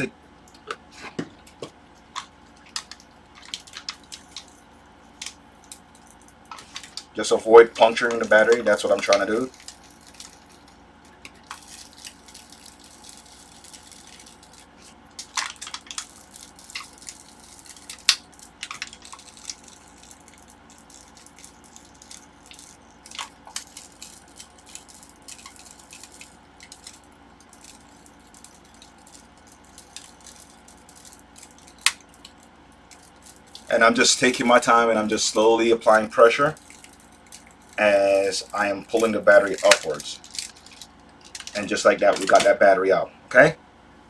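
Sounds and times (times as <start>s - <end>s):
faint steady hum: 0.0s - 44.0s
plastic tools clicking and scraping: 39.0s - 42.5s.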